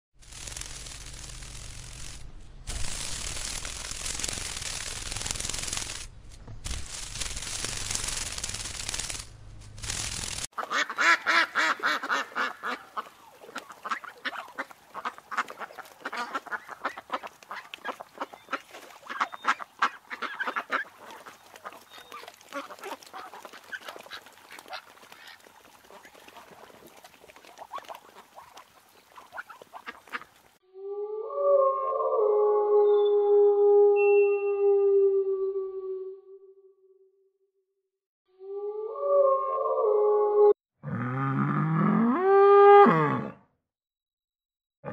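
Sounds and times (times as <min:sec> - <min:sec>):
steady hiss: 0:00.2 - 0:10.5
ducks quacking: 0:10.6 - 0:30.4.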